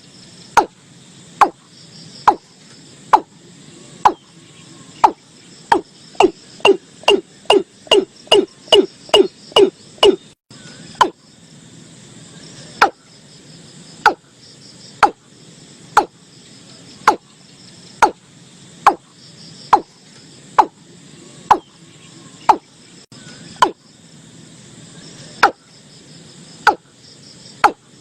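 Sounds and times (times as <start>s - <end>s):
insect chirring: 0.0s - 28.0s
bird calling sharp notes: 4.0s - 11.2s.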